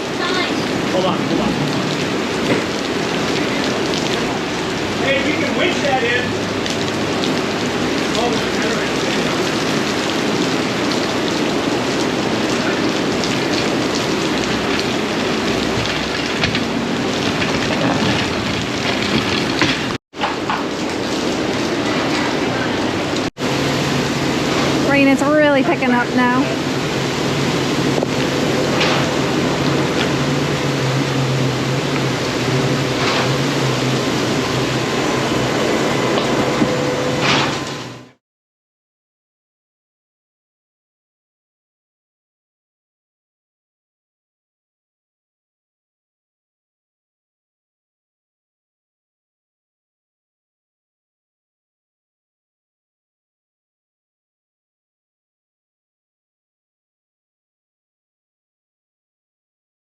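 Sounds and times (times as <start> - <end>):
raindrops tapping surfaces: 0.0 - 38.0
heavy rain falling: 0.0 - 38.2
vehicle engine humming: 21.4 - 38.1.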